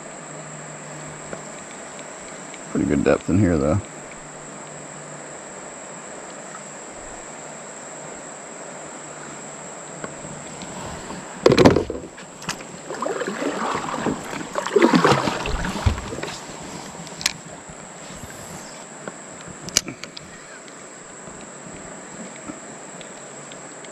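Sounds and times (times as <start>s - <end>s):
water splashing and sloshing: 10.0s - 19.8s.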